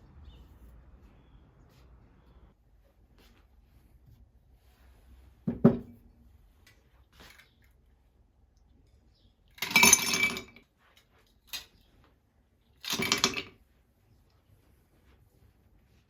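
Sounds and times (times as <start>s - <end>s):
hard objects clinking: 9.5s - 10.6s, 12.8s - 13.6s.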